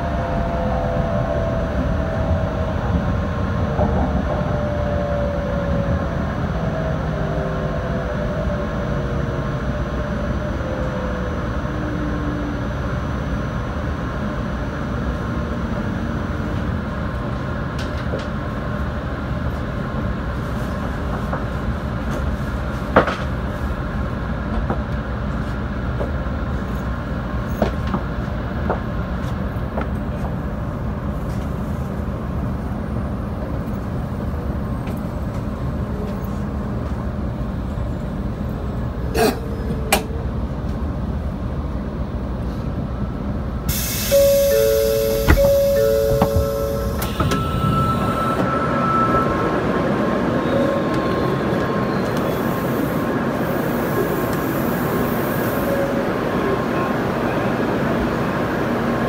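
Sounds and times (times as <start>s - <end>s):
train cabin rumble: 13.5s - 59.0s
sudden hiss: 43.7s - 45.4s
short held tones: 44.0s - 49.3s.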